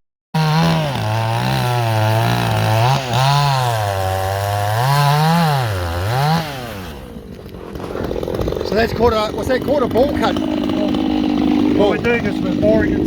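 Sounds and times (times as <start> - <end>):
chainsaw cutting into tree trunk: 0.4 - 13.0.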